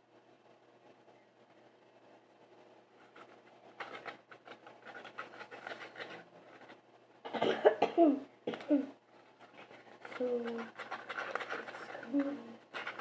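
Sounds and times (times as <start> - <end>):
spoon scraping in a bowl: 9.4 - 13.0.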